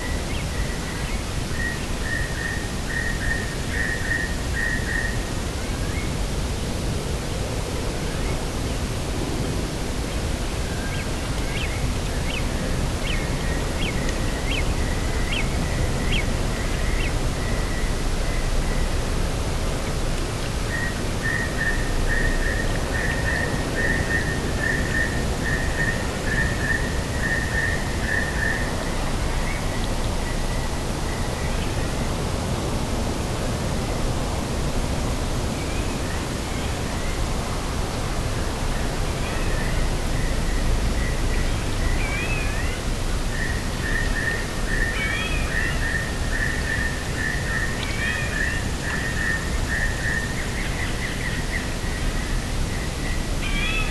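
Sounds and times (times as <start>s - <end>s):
sea: 0.0s - 53.9s
wind: 0.0s - 53.9s
bird calling: 53.4s - 53.9s.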